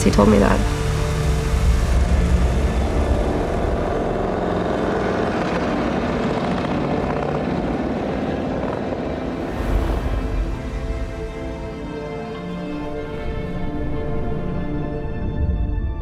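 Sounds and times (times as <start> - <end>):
motorcycle engine throbbing: 0.0 - 9.4.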